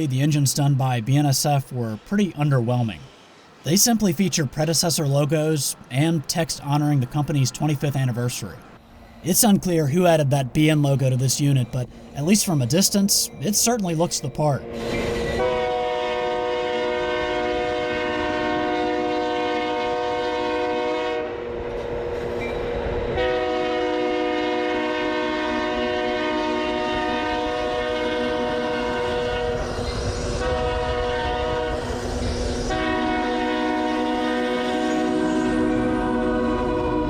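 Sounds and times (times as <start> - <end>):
train rumbling and clacking: 0.0 - 15.7, 21.4 - 23.4, 27.0 - 37.0
train air horn blasts: 14.7 - 22.3, 23.0 - 37.0.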